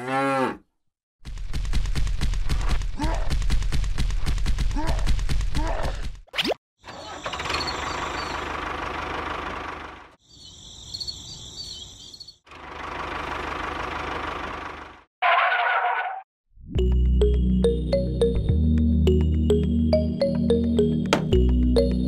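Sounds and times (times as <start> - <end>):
faint high chirping: 6.9 - 8.5, 10.2 - 12.4.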